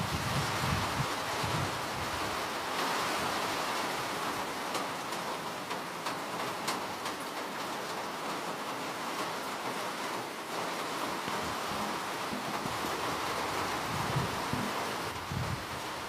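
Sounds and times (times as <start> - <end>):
rain hiss: 0.0 - 16.0
raindrops ticking: 4.2 - 13.6.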